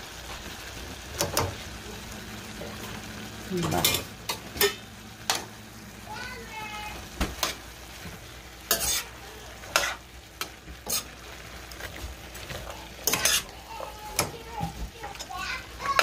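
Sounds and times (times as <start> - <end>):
food sizzling in a pan: 0.0 - 16.0
metal spoon scraping a pan: 3.7 - 5.4, 8.6 - 14.3.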